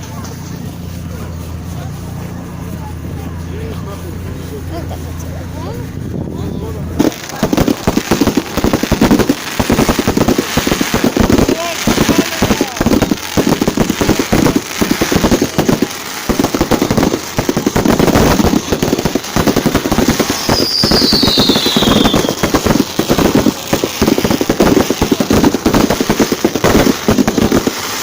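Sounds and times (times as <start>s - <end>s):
fireworks crackling and banging: 0.0s - 28.0s
falling firework whistle: 19.7s - 23.5s.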